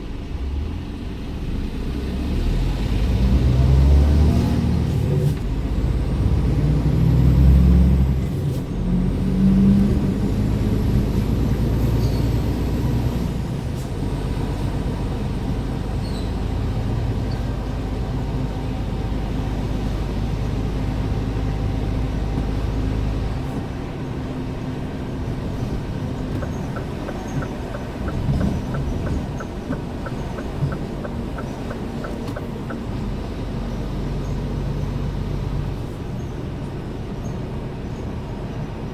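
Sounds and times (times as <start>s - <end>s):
truck diesel engine running: 4.8s - 35.9s
quick regular ticking: 26.3s - 32.8s.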